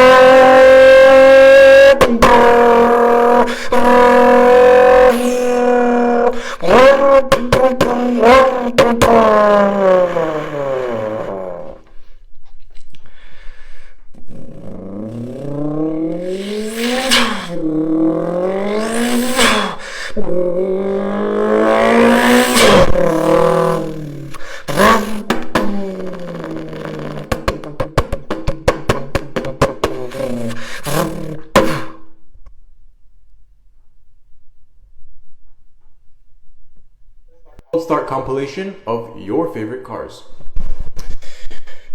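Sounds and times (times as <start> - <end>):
car engine revving: 0.0 - 11.9, 14.2 - 31.9
exhaust crackling pops: 0.0 - 12.1, 14.1 - 32.6.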